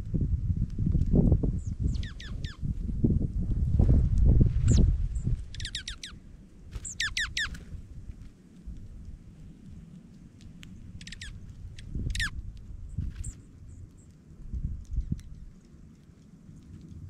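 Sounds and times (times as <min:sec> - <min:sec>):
bird chip notes: 0:05.5 - 0:06.2.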